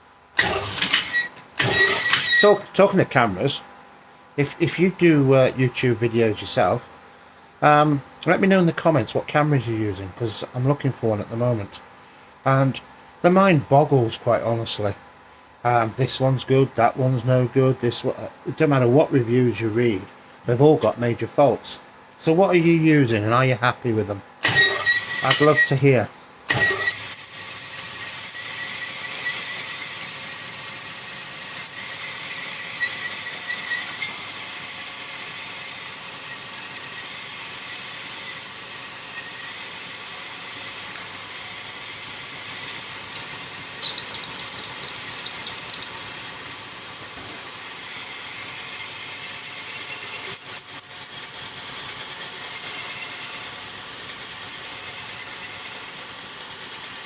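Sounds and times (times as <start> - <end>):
honing stones hissing: 38.1 - 51.4.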